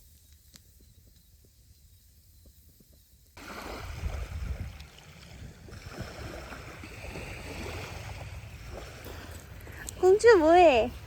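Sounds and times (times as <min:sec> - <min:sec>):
wind buffeting microphone: 0:02.4 - 0:11.0
seaside water noise: 0:02.9 - 0:11.0.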